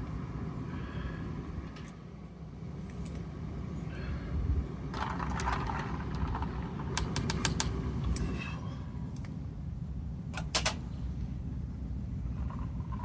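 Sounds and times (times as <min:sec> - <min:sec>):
light metallic clinks: 0:07.0 - 0:07.8.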